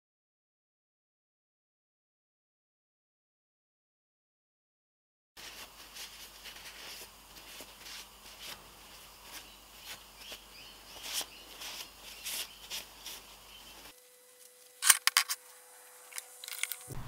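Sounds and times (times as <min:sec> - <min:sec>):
cloth rag wiping metal: 0:05.4 - 0:13.9.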